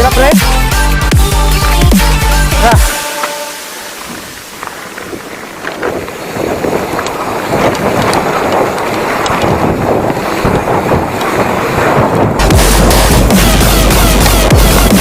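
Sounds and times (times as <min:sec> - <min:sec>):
electronic music with heavy bass: 0:00.0 - 0:04.6, 0:12.4 - 0:15.0
mountain bike rattling on trail: 0:03.9 - 0:13.3
wind buffeting microphone: 0:03.9 - 0:15.0
scattered clicks: 0:06.9 - 0:09.6.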